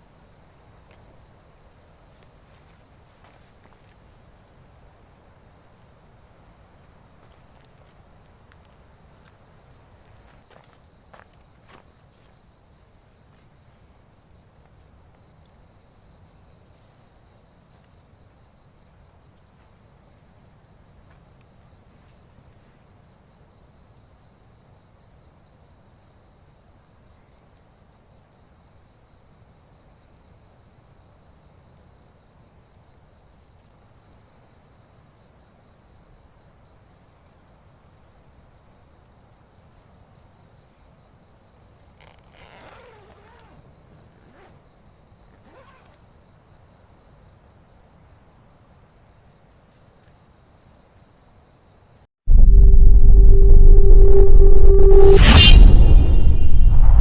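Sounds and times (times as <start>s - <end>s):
crickets and insects trilling: 0.0s - 52.0s
short sound falling in pitch: 52.3s - 57.0s.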